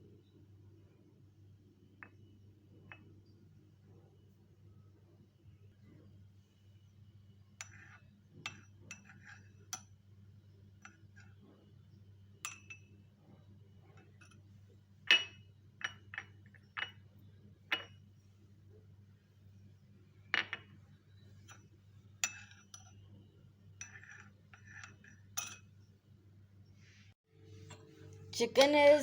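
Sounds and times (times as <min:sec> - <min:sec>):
faint low hum: 0:00.0 - 0:29.0
spoon clinking against a cup: 0:07.6 - 0:10.0, 0:10.8 - 0:11.4, 0:12.4 - 0:13.0, 0:15.1 - 0:17.1, 0:17.7 - 0:18.1, 0:21.4 - 0:23.1, 0:23.8 - 0:25.8.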